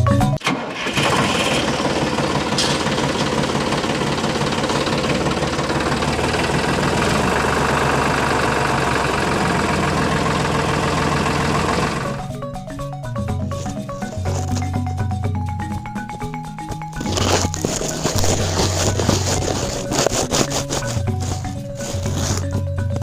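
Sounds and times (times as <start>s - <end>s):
small engine running: 0.5s - 12.4s, 17.0s - 23.0s.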